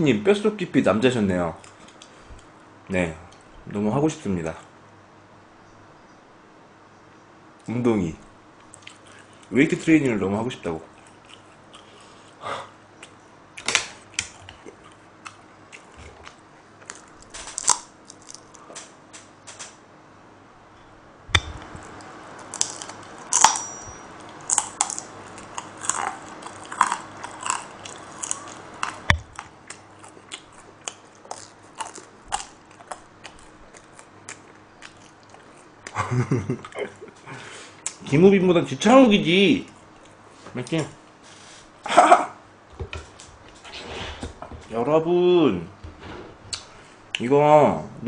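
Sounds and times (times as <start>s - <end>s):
person chewing food: 10.9s - 12.4s, 13.0s - 18.8s, 21.4s - 23.6s, 24.2s - 36.0s.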